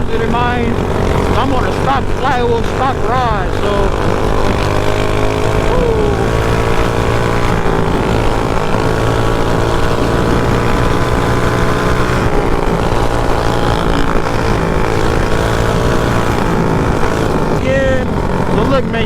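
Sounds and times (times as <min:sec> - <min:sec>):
small motorbike engine running: 0:00.0 - 0:19.0.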